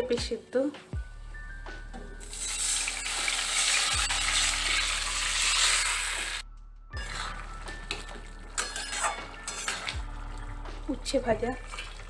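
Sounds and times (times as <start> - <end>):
background music: 0.0 - 12.0
food sizzling in hot oil: 2.2 - 6.4, 7.0 - 12.0.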